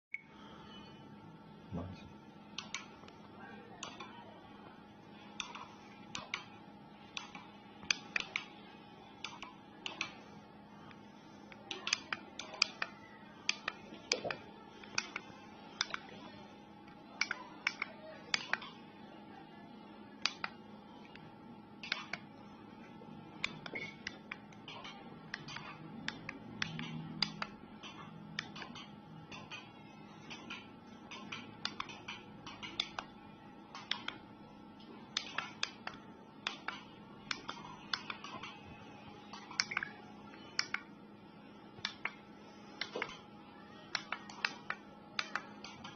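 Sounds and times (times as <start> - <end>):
steady low hum: 0.1 - 45.9
sharp clicks and taps: 23.4 - 29.7, 30.3 - 33.1, 39.3 - 39.9, 41.8 - 42.2.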